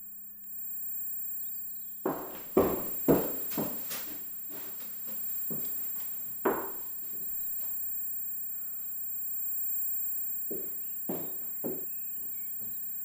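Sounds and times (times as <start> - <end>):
footsteps: 2.1 - 7.3, 10.5 - 11.8.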